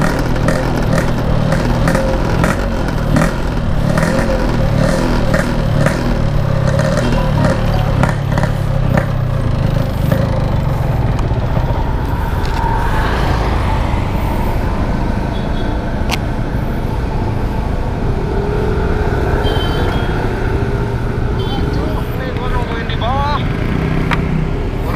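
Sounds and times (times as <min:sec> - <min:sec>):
two-stroke motorcycle engine running: 0:00.0 - 0:12.3.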